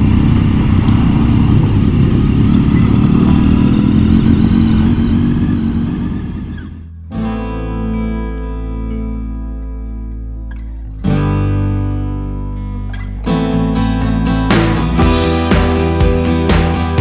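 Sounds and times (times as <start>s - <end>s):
acoustic guitar music: 0.0s - 17.0s
motorcycle engine running: 14.5s - 17.0s.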